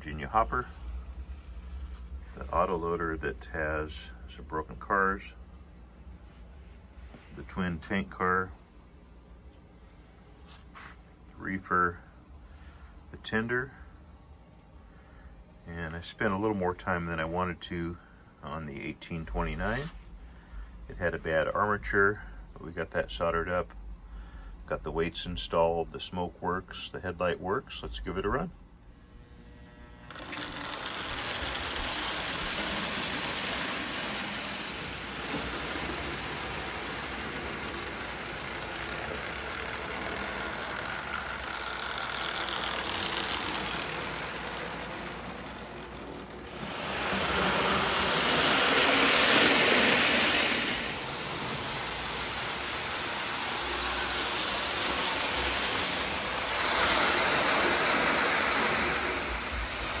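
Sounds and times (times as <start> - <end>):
electric motor whirr: 29.5 - 60.0
toy train wheels rattling on rails: 30.1 - 60.0.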